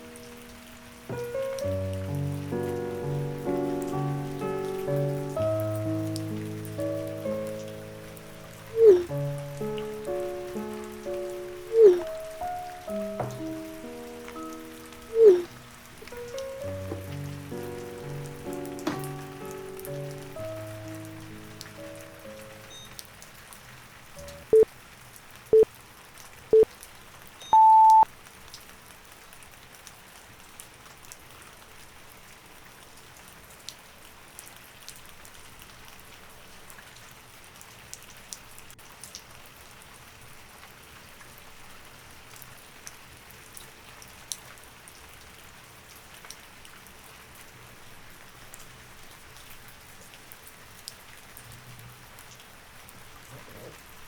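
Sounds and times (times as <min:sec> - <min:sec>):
steady rain: 0:00.0 - 0:54.0
timer beeps: 0:27.4 - 0:28.0.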